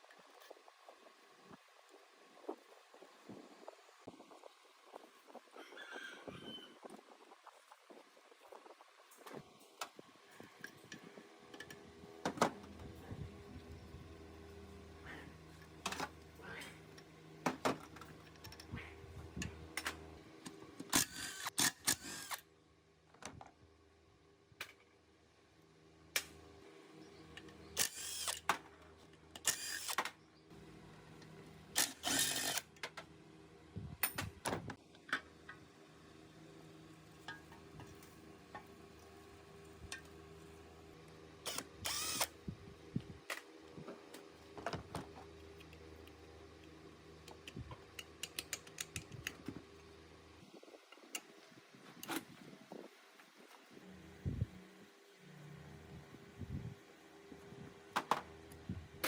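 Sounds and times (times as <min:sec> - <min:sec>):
handheld power tool bursts: 0:20.9 - 0:22.4, 0:27.8 - 0:28.5, 0:29.4 - 0:30.2, 0:31.8 - 0:32.7, 0:41.5 - 0:42.4
metallic clicks: 0:47.2 - 0:49.4.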